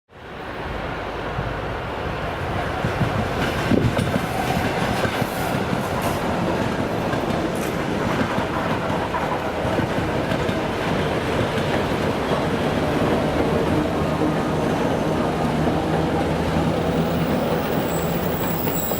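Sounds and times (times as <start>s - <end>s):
train wheels clicking over rail joints: 2.8s - 14.5s.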